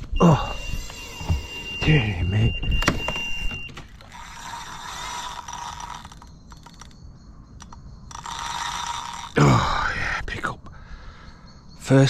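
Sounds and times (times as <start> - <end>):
electronic bite alarm tone: 0.0 - 3.8
fishing reel ratcheting tick: 4.0 - 7.0, 7.6 - 9.4.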